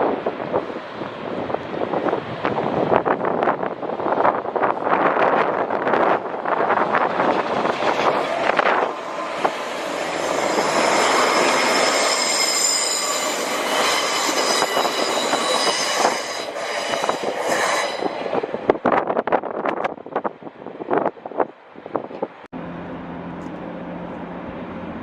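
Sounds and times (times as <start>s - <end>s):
train rumble: 0.0s - 25.0s
metallic wheel squeal: 8.2s - 18.3s.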